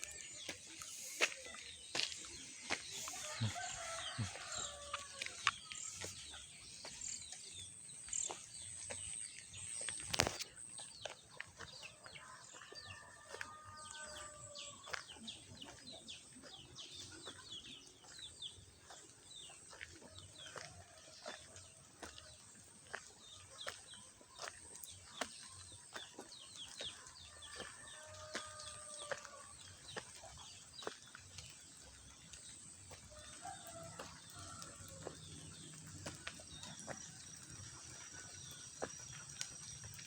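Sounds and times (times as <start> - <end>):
rooster crowing: 3.0 - 5.4.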